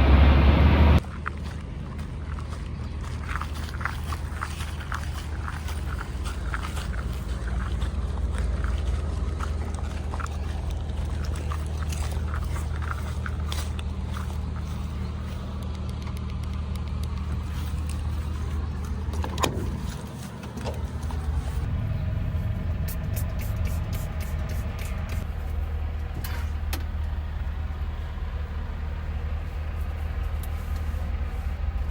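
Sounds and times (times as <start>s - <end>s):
truck engine droning: 0.0s - 31.9s.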